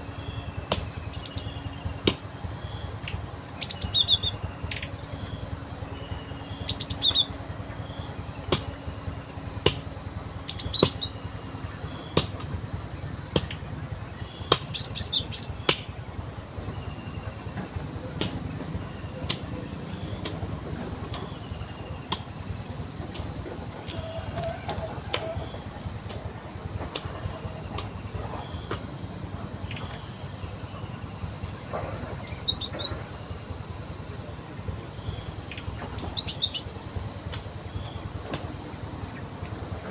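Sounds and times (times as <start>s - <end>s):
high-pitched insect drone: 0.0s - 39.9s
bird chirping calls: 0.1s - 2.0s, 2.8s - 8.4s, 10.4s - 12.2s, 14.2s - 15.6s, 23.7s - 26.3s, 32.2s - 33.1s, 35.5s - 36.7s.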